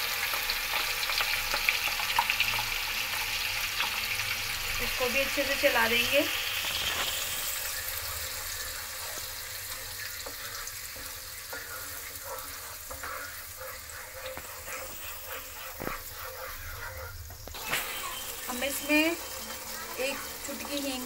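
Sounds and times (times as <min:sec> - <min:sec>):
paste sizzling in hot oil: 0:00.0 - 0:21.0
wooden spatula scraping pan: 0:04.9 - 0:21.0.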